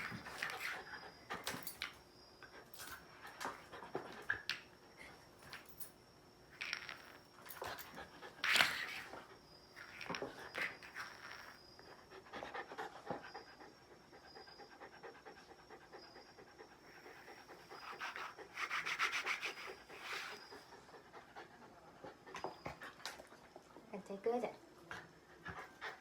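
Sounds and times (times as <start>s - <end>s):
dog panting: 11.9s - 23.9s, 24.8s - 26.0s.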